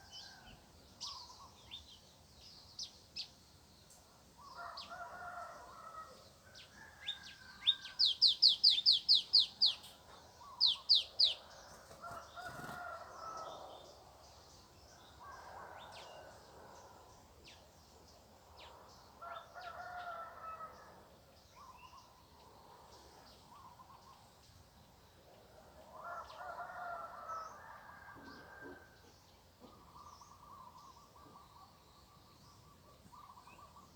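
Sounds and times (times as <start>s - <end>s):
roosters crowing faintly: 4.3s - 14.2s, 25.5s - 33.9s.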